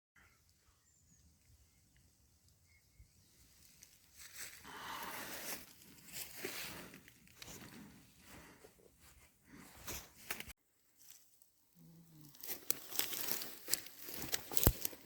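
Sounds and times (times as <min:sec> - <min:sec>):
rustling and scuffing: 0:03.7 - 0:04.6, 0:05.2 - 0:11.3.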